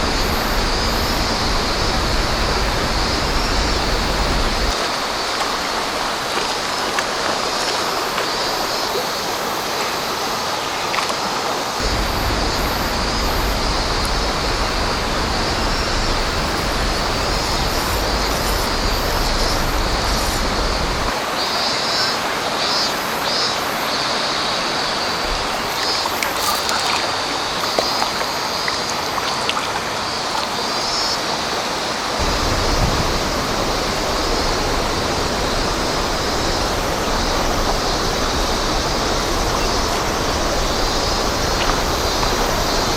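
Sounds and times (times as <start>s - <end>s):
low rumble: 0.0s - 4.7s, 11.8s - 21.1s
river water rushing: 0.0s - 42.9s.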